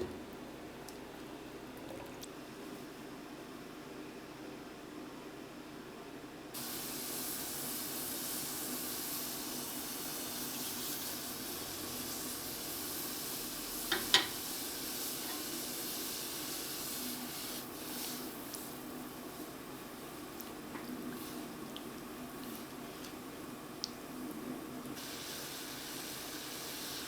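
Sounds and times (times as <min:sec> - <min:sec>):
steady hiss: 0:06.5 - 0:27.0.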